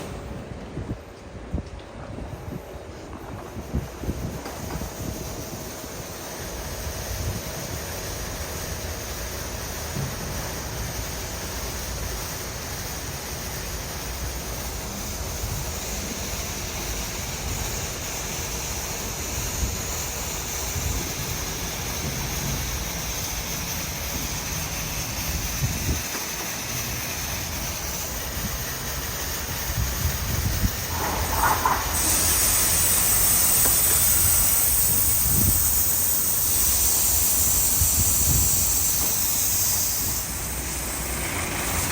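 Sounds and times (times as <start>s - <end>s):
low machine rumble: 30.0s - 35.6s.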